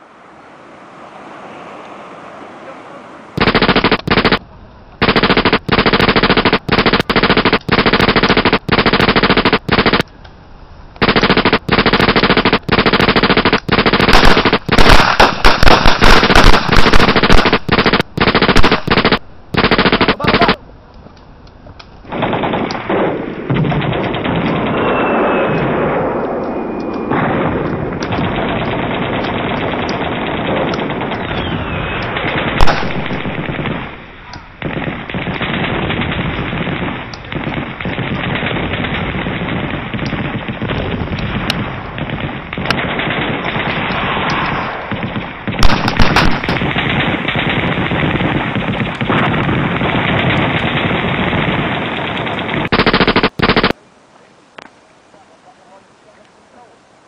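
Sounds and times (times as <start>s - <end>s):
machine-gun and rifle fire: 3.4s - 4.4s, 5.0s - 10.1s, 11.0s - 20.6s, 22.1s - 26.1s, 27.1s - 53.8s
sharp loud gunshot: 11.0s - 20.6s, 32.5s - 34.0s, 45.6s - 47.4s.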